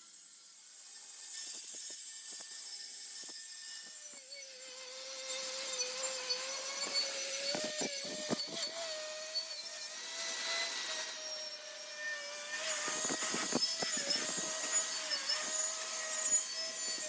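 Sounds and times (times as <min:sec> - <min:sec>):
power tool rasping on metal: 0:00.8 - 0:17.0
motor whine: 0:02.3 - 0:17.0.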